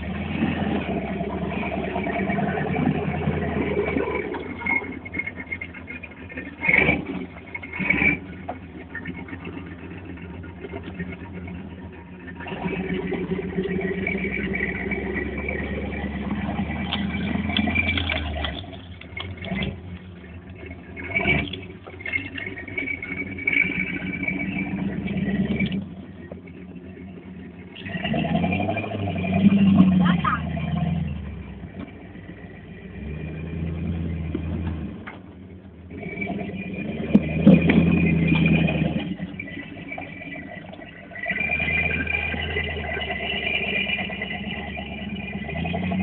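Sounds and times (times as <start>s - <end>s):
off-road engine rumbling: 0.0s - 46.0s.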